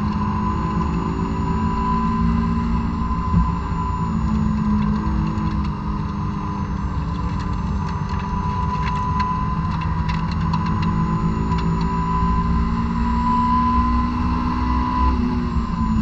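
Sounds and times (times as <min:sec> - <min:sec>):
steady high tone: 0:00.0 - 0:05.5
car engine at high revs: 0:00.0 - 0:16.0.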